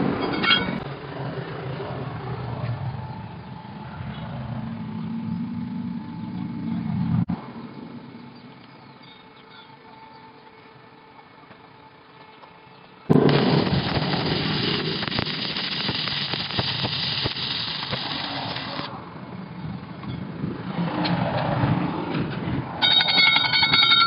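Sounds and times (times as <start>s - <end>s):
electric welding arc crackling: 13.1s - 18.9s.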